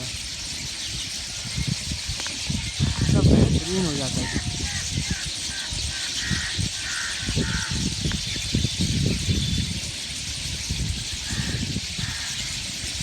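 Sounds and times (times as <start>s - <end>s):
birdsong: 0.0s - 13.0s
harsh bird call: 2.5s - 8.0s.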